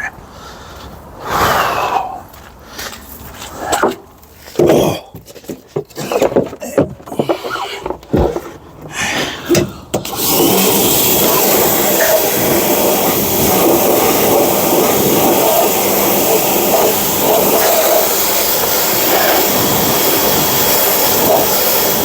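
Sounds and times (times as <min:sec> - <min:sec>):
handling clunks and knocks: 0:03.6 - 0:10.1
pressure washer spraying: 0:10.0 - 0:22.0.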